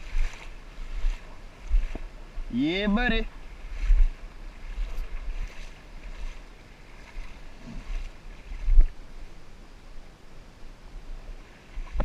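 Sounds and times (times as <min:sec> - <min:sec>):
wind buffeting microphone: 0:00.0 - 0:09.1
creek water rushing: 0:00.0 - 0:12.0.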